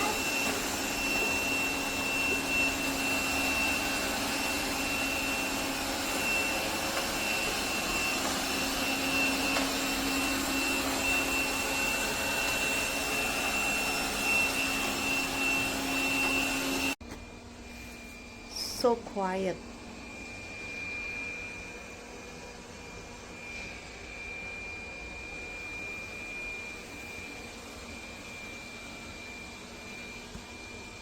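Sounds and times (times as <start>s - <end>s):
robot vacuum cleaner whirring: 0.0s - 17.3s.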